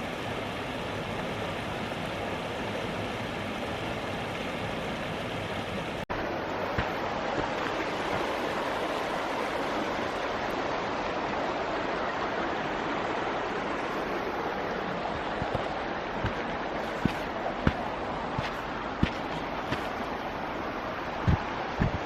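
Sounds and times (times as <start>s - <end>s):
creek water rushing: 0.0s - 22.0s
soft footfalls: 15.2s - 20.0s, 21.2s - 22.0s.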